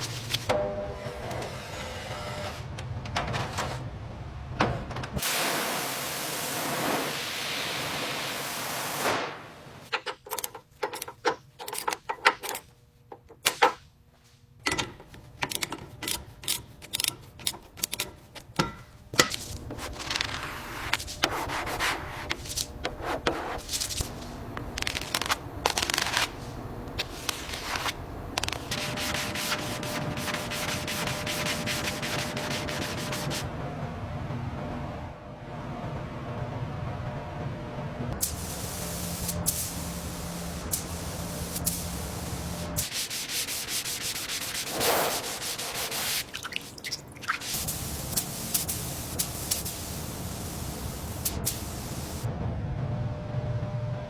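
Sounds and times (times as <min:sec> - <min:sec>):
loud steady hiss: 0:05.2 - 0:09.8, 0:38.2 - 0:46.3, 0:47.4 - 0:52.3
sanding car bodywork: 0:19.8 - 0:23.7, 0:28.5 - 0:33.4, 0:38.4 - 0:46.3.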